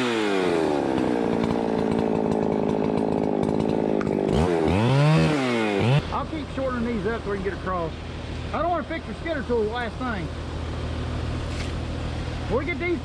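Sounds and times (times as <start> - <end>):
chainsaw cutting log: 0.0 - 6.8.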